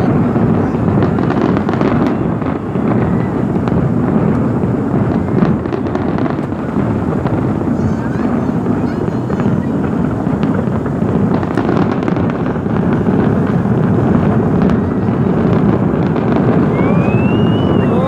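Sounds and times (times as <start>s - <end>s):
faint fireworks crackles: 0.0s - 18.0s
fireworks barrage rumble: 0.0s - 18.0s
wind noise on microphone: 0.0s - 18.0s.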